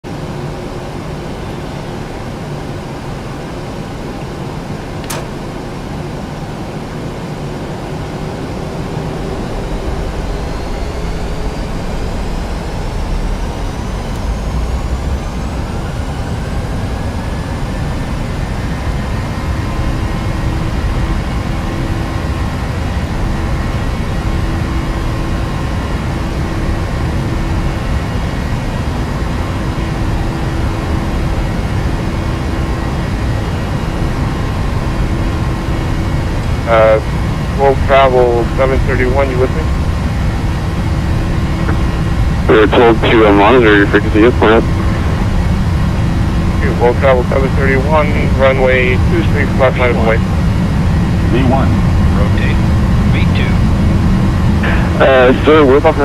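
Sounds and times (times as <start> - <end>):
sharp click: 5.0 - 5.4
jet engines spooling up: 7.6 - 56.0.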